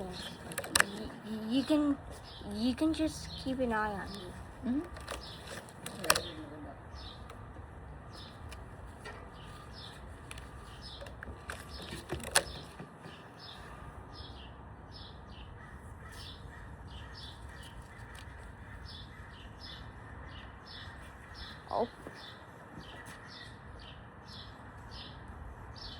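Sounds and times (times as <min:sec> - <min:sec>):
small birds chirping: 0:00.0 - 0:25.9.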